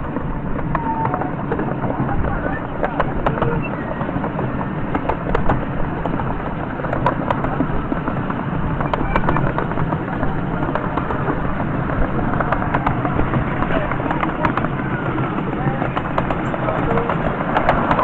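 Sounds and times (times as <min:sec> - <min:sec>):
miniature train rumbling: 0:00.0 - 0:18.0.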